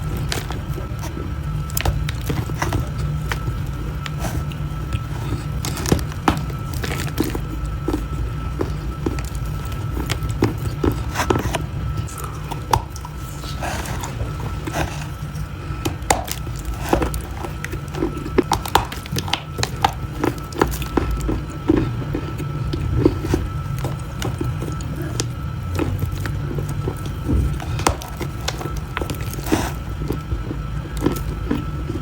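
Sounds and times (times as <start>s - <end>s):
chewing crunchy food: 0.0s - 32.0s
steady low hum: 0.0s - 32.0s.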